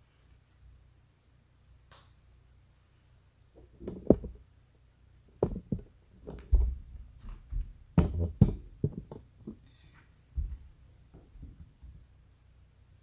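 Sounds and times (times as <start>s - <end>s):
irregular knocks and thumps: 3.6s - 4.4s, 5.4s - 9.7s, 10.4s - 12.0s.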